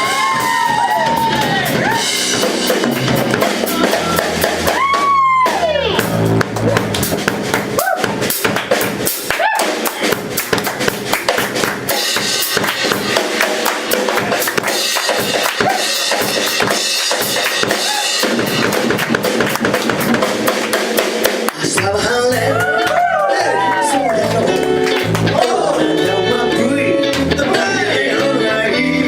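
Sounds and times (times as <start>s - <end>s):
bass drum and snare hits: 0.0s - 21.6s
live band playing: 0.0s - 29.0s.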